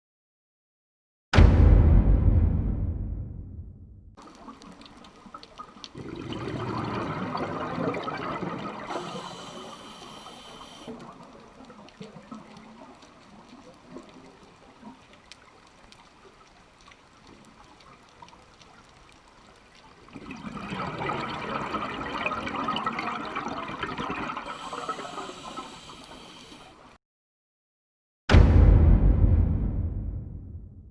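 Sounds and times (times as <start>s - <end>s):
sea water washing and splashing: 4.2s - 27.0s.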